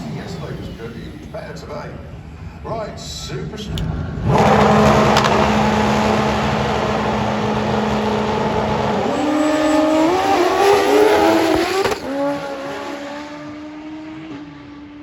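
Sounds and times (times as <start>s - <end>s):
motorcycle engine at full throttle: 4.1s - 14.9s.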